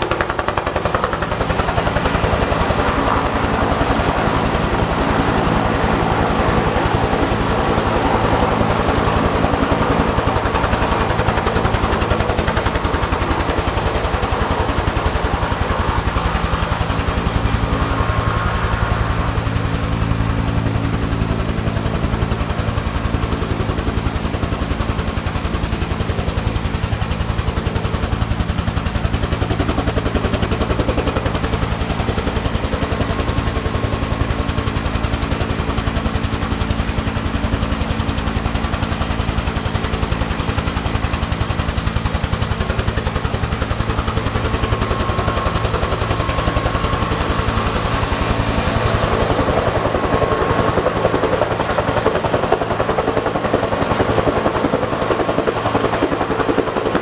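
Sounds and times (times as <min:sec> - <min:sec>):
helicopter rotor chop: 0:00.0 - 0:57.0
turbine engine hum: 0:00.0 - 0:57.0
high whine: 0:12.8 - 0:24.7.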